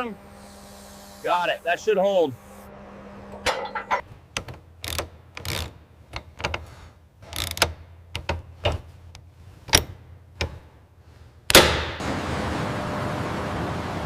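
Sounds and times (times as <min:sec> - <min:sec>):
hand tools clicking on metal: 0:03.5 - 0:10.6.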